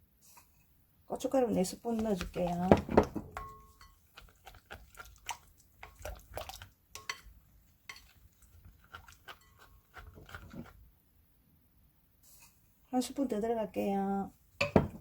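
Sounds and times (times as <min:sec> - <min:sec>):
spoon clinking against bowl: 0:03.3 - 0:04.6, 0:07.0 - 0:07.3, 0:09.0 - 0:09.9.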